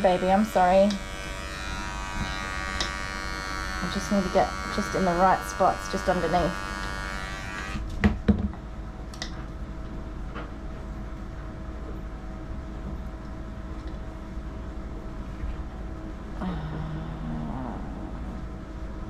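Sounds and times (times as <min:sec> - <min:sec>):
electric clippers humming: 0:00.0 - 0:08.0.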